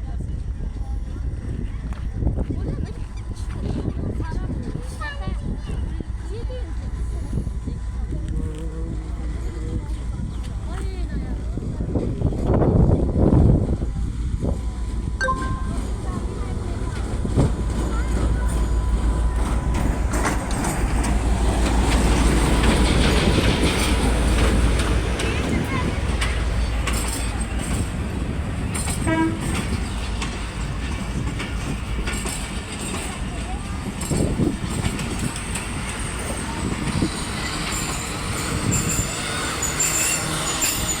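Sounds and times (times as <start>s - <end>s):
train passing: 8.9s - 41.0s
wheels clattering over rail joints: 16.0s - 41.0s
thin high squeals: 37.8s - 41.0s.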